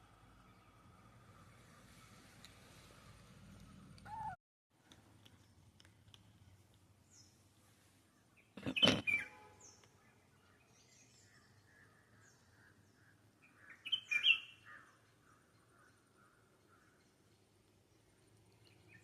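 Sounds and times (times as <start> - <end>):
birds chirping: 3.5 - 4.4, 6.4 - 19.0.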